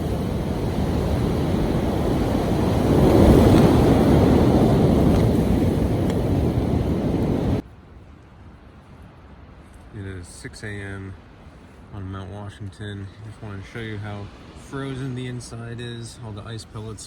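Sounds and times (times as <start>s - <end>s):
blizzard wind gusting: 0.0s - 7.6s
wind buffeting microphone: 0.0s - 7.6s.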